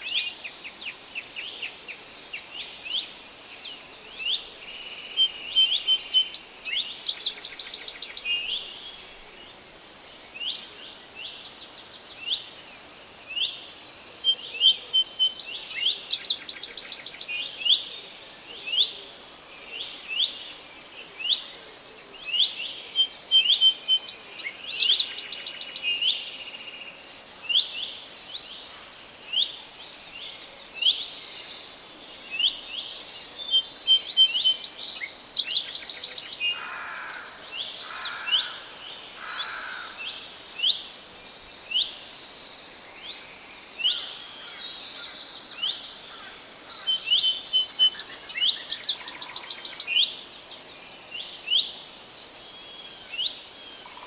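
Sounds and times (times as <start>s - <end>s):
songbirds chirping and trilling: 0.0s - 54.0s.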